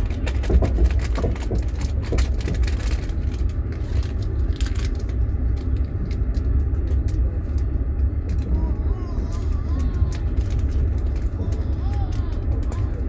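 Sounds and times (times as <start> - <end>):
light clicks and rattles: 0.0 - 13.0
train rumble inside car: 0.0 - 13.0.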